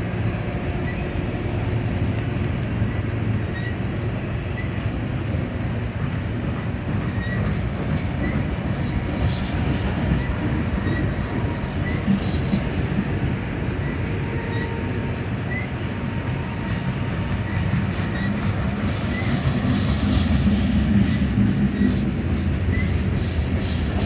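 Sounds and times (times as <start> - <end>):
freight train wheels rumbling: 0.0 - 24.0
high wheel squeal: 2.8 - 4.8, 7.1 - 8.5, 10.2 - 12.5, 13.8 - 15.9, 17.4 - 19.6, 21.0 - 23.1.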